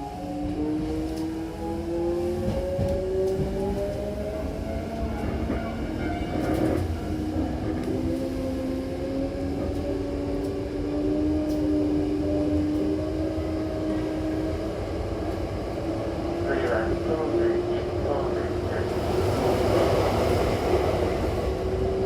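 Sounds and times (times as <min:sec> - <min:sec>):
train rumble: 0:00.0 - 0:22.0.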